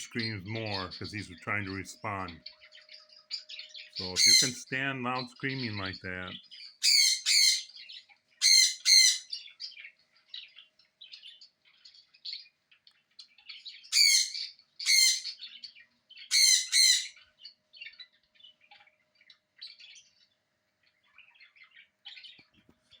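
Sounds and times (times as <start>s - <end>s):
soft bird chirps and tweets: 0.0s - 23.0s
parrot squawking harshly: 4.0s - 4.7s, 6.8s - 7.8s, 8.4s - 9.4s, 13.9s - 15.4s, 16.3s - 17.2s.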